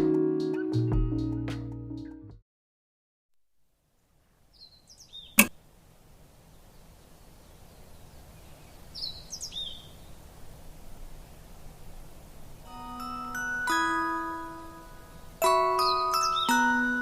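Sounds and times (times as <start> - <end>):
outdoor background noise: 3.4 - 17.0
bird calling: 6.6 - 10.2.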